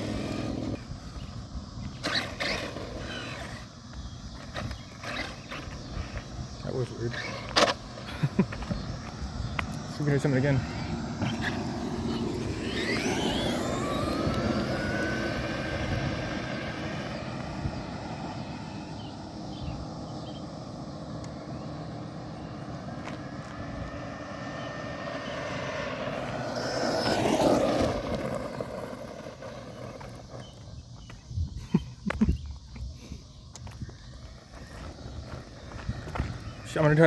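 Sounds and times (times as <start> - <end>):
electric toy truck motor whining: 0.0 - 1.2, 1.8 - 6.2, 6.9 - 7.8, 10.6 - 18.9, 25.2 - 30.6
tyre and road noise: 0.0 - 37.0.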